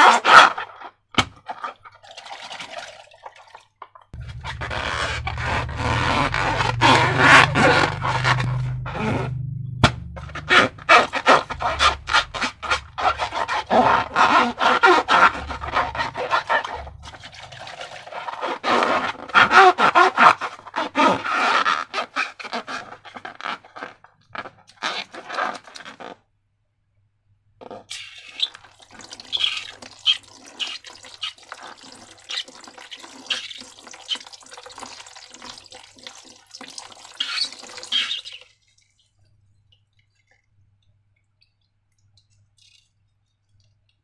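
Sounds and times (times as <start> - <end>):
sticky slime squelching: 4.2 - 20.6.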